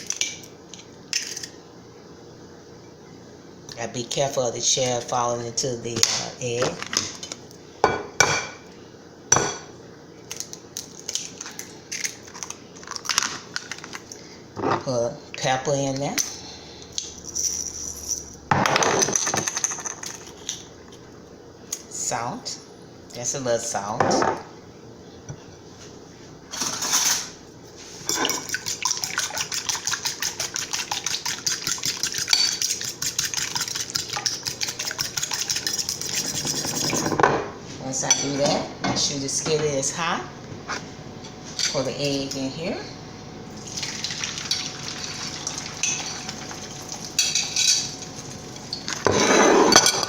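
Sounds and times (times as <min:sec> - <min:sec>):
fork beating eggs in a bowl: 0:28.0 - 0:37.1.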